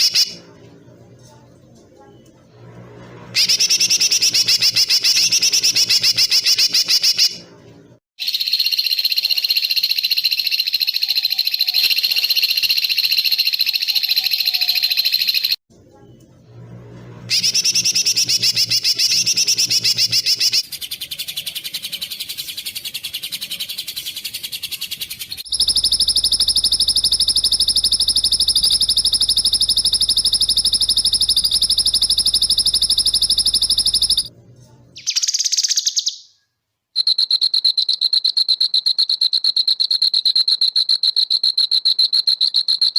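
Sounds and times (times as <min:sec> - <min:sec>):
long buzzing trill: 0:25.5 - 0:34.3.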